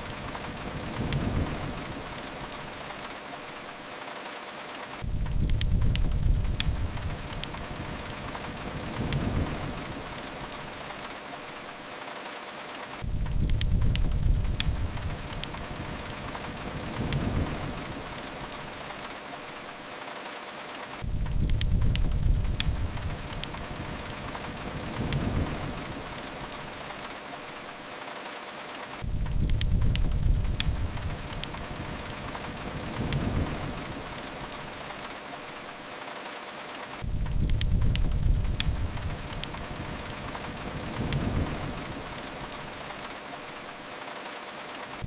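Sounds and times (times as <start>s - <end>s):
thunder rumbling: 0.0s - 3.1s, 5.0s - 11.1s, 13.0s - 19.7s, 21.0s - 27.7s, 29.0s - 35.7s, 37.0s - 43.8s
steady rain: 0.0s - 45.0s
wood fire crackling: 0.0s - 45.0s.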